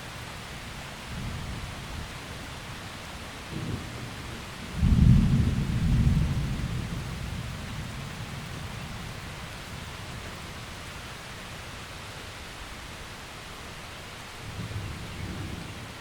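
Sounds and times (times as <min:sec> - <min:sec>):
rain hissing: 0:00.0 - 0:16.0
thunder rumbling: 0:03.5 - 0:09.3.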